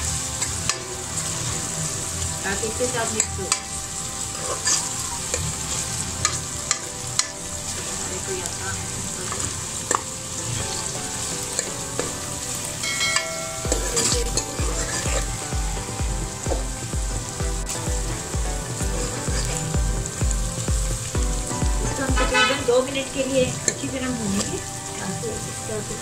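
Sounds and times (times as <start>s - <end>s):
onions sizzling in hot oil: 0.0s - 26.0s
low pulse: 12.8s - 22.4s.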